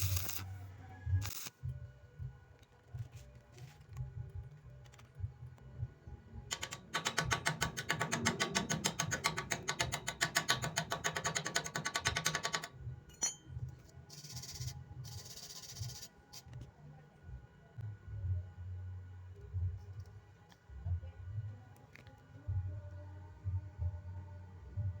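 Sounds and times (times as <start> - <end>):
welding arc crackling: 0.0 - 0.6, 1.2 - 1.6.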